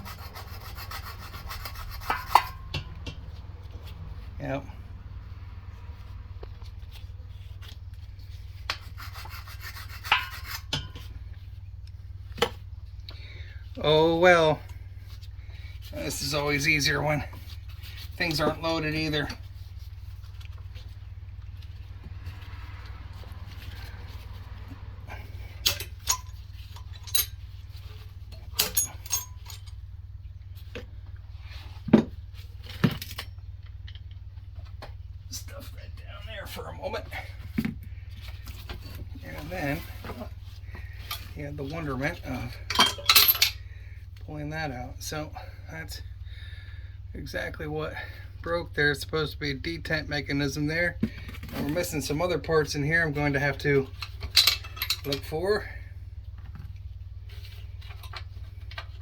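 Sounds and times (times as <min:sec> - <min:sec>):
steady low hum: 0:00.0 - 0:59.0
metal tools clinking: 0:25.1 - 0:30.0, 0:42.4 - 0:43.7, 0:53.8 - 0:55.7.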